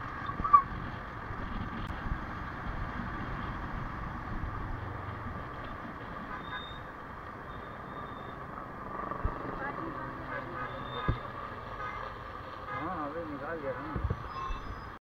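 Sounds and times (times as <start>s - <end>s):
wind on microphone: 0.0s - 6.4s, 13.9s - 15.0s
city traffic: 0.0s - 15.0s.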